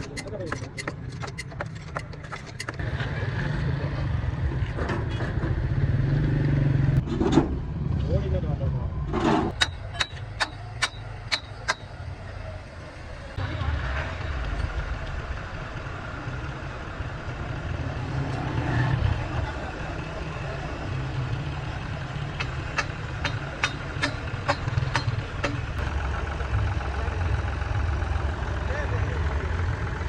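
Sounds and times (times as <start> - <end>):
engine idling: 9.5 - 30.0.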